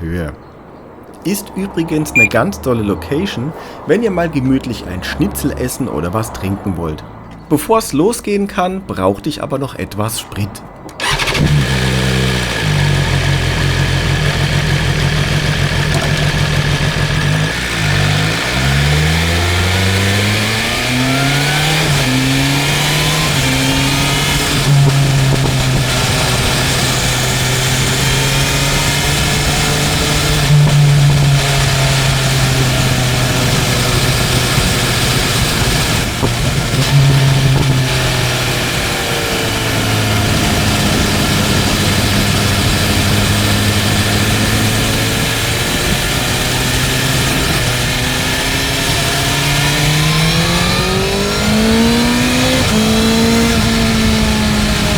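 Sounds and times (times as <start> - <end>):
motorcycle engine accelerating: 11.0 - 54.9.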